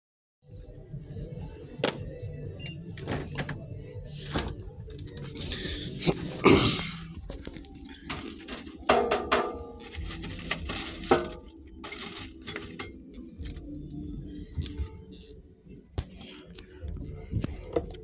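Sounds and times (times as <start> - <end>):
hard objects clattering and clinking: 2.7 - 13.9
scraping rustle: 7.2 - 8.9, 9.8 - 13.0.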